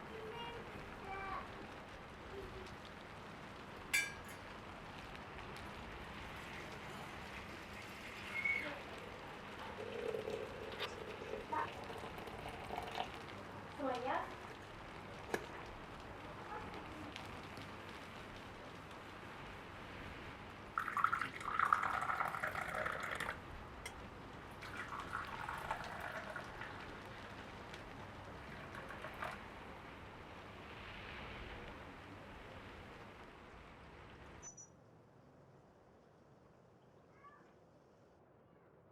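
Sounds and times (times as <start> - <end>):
water pouring: 5.5 - 14.6, 20.7 - 29.8.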